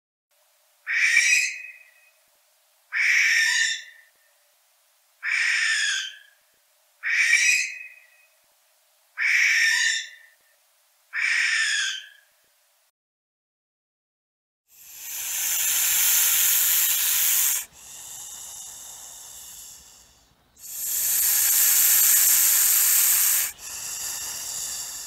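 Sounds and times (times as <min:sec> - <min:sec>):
barn owl screeching: 0:00.9 - 0:01.8, 0:03.0 - 0:04.0, 0:05.2 - 0:06.3, 0:07.0 - 0:08.0, 0:09.2 - 0:10.2, 0:11.2 - 0:12.2, 0:14.8 - 0:25.0.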